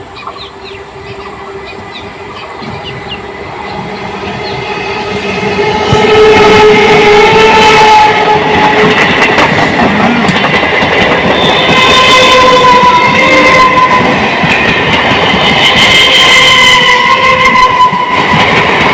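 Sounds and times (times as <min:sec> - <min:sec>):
train wheels clattering on rails: 0:00.0 - 0:18.9
train horn blast: 0:01.1 - 0:09.1, 0:11.2 - 0:14.3, 0:15.6 - 0:18.6.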